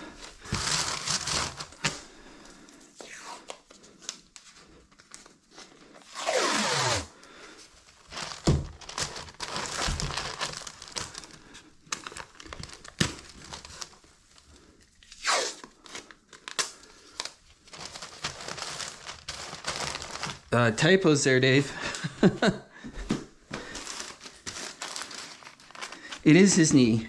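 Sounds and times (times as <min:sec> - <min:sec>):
crinkling and handling noise: 0:00.0 - 0:06.4, 0:07.2 - 0:27.0
adhesive tape ripping: 0:06.1 - 0:07.1, 0:15.1 - 0:15.8.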